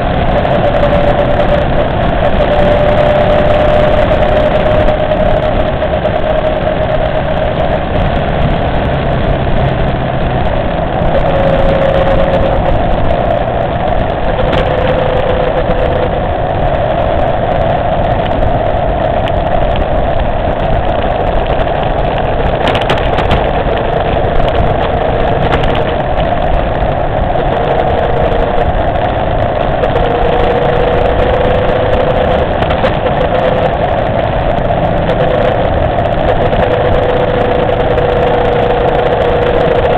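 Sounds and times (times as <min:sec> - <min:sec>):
motorcycle engine cruising: 0:00.0 - 0:39.9
wind noise: 0:00.0 - 0:39.9.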